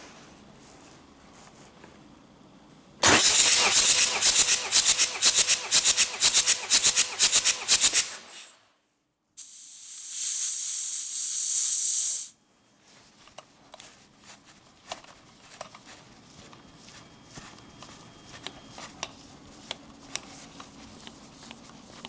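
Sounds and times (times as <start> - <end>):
diesel engine cranking on starter: 3.0 - 8.5
steady hiss: 9.4 - 12.4.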